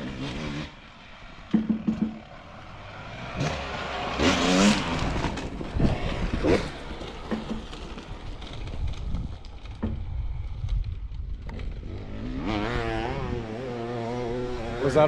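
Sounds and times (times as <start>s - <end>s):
dirt bike engines revving: 0.0s - 9.9s, 11.4s - 15.0s.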